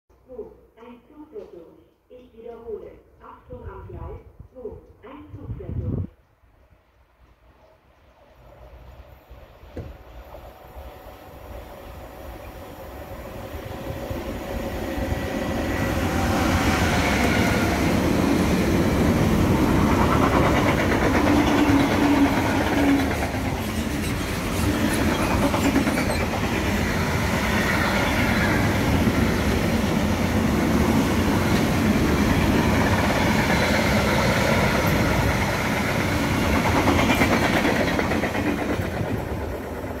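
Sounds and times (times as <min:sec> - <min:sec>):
freight train rumbling and clattering: 0:13.1 - 0:40.0.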